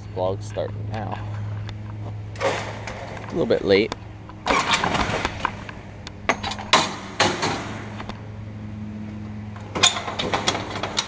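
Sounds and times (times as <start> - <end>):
engine idling: 0.0 - 11.0
sharp knocks and clatters: 4.4 - 8.2, 9.6 - 11.0.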